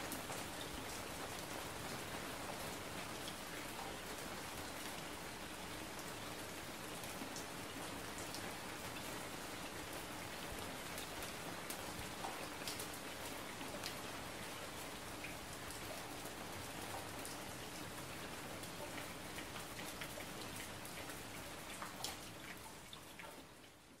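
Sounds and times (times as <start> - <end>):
rain-like patter: 0.0 - 24.0.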